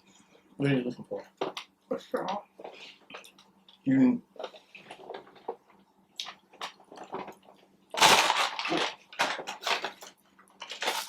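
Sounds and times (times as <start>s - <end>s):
crunching and chewing: 6.2s - 11.0s.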